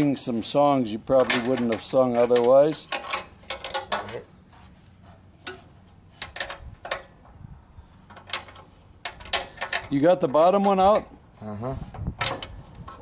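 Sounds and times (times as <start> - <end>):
metallic clicks of tools and parts: 1.2 - 4.2, 5.4 - 7.2, 8.0 - 10.0.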